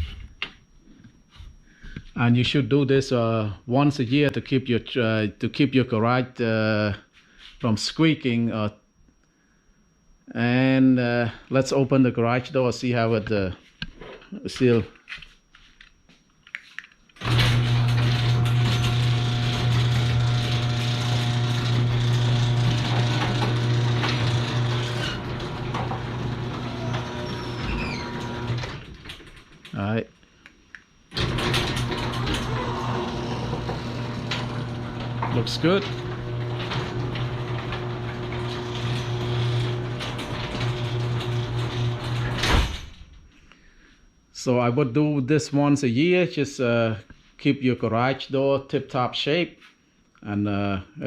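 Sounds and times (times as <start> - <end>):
garage door drive rattling: 17.2 - 29.6, 31.2 - 42.8
garage door motor humming: 17.2 - 29.9, 31.1 - 43.3.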